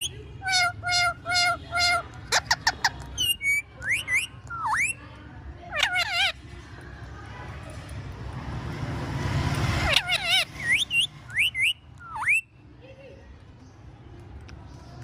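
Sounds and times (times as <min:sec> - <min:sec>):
parrot whistling: 0:00.0 - 0:05.0, 0:09.8 - 0:12.5.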